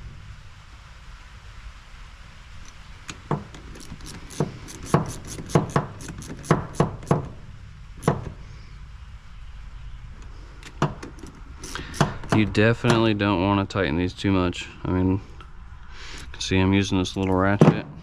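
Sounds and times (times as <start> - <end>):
metal knocks and clicks of tools: 3.1 - 7.4, 8.0 - 8.4, 10.6 - 13.1.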